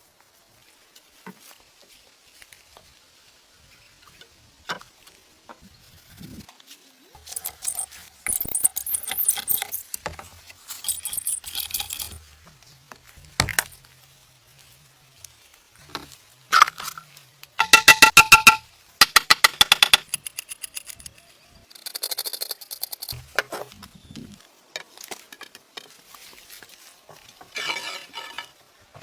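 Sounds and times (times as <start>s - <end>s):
rustling or scraping: 0.1s - 18.7s, 20.0s - 29.0s
ringing taps: 17.6s - 18.6s.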